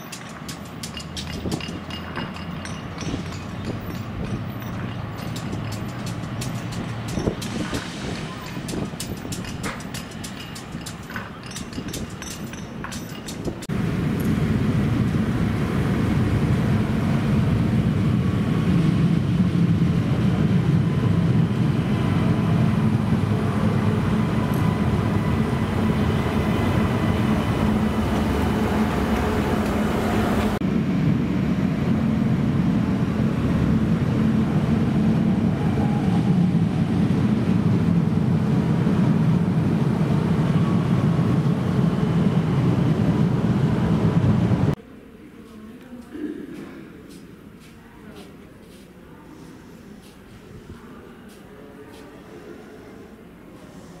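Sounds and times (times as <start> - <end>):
train wheels rumbling on rail: 0.0 - 44.8.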